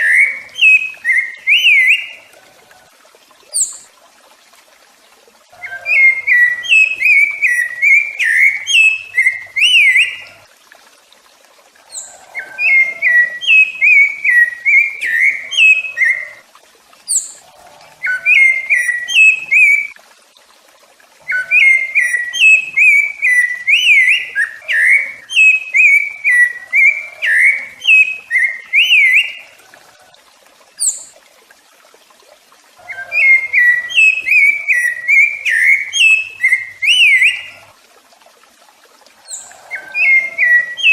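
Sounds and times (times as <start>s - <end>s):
thrush whistled song: 0.0s - 2.3s, 5.6s - 10.4s, 11.9s - 16.4s, 18.0s - 20.0s, 21.2s - 29.5s, 32.8s - 37.6s, 39.3s - 40.9s.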